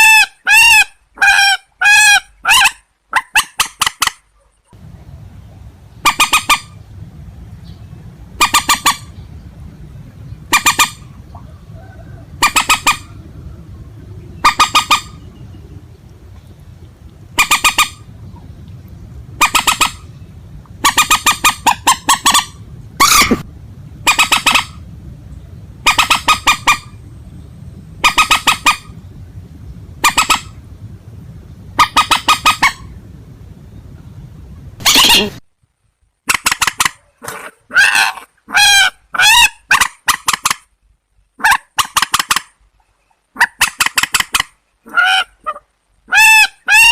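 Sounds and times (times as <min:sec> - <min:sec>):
steady low hum: 0:04.2 - 0:36.2
marsh bird honking calls: 0:06.0 - 0:06.8, 0:08.4 - 0:09.4, 0:10.4 - 0:13.3, 0:14.3 - 0:16.0, 0:17.3 - 0:18.5, 0:19.4 - 0:24.9, 0:25.8 - 0:27.1, 0:28.0 - 0:29.0, 0:30.0 - 0:30.7, 0:31.8 - 0:33.0, 0:34.8 - 0:35.4.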